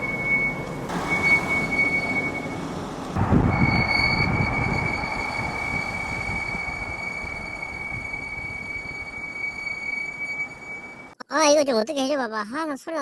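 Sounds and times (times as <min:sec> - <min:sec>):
moving car rumble: 0:00.0 - 0:11.1
brakes squealing: 0:00.0 - 0:11.2.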